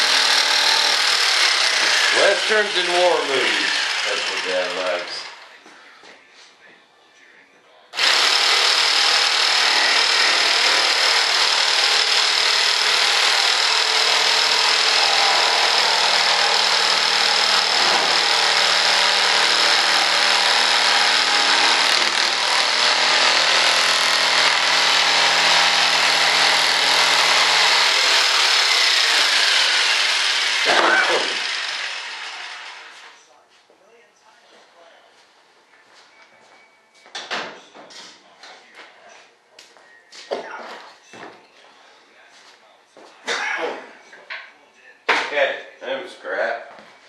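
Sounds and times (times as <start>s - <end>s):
electric power saw cutting: 0.0s - 5.4s, 8.0s - 33.2s.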